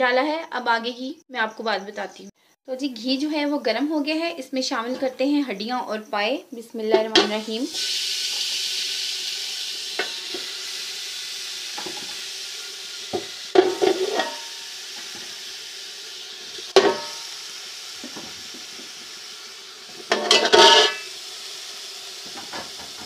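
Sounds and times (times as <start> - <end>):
bones sizzling in hot fat: 7.1 - 23.0
bones knocking against a pot: 16.6 - 17.2, 20.0 - 21.0.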